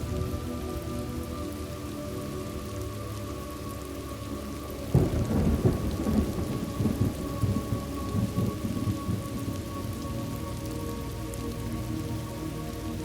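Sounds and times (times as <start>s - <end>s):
steady rain: 0.0s - 13.0s
thunder rumbling: 4.9s - 10.4s.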